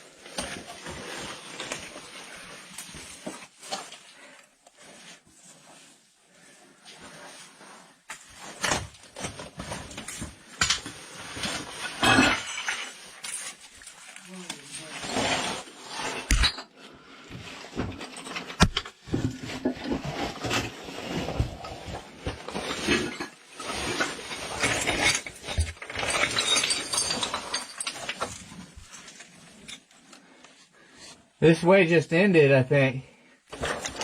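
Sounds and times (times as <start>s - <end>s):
body and gear scraping rock: 0.0s - 16.4s.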